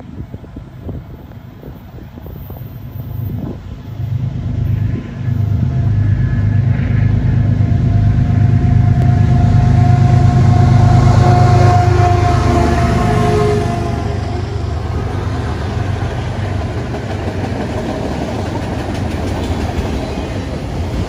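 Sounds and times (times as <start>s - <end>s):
diesel locomotive engine rumble: 0.0s - 21.0s
steady high tone: 4.4s - 16.5s.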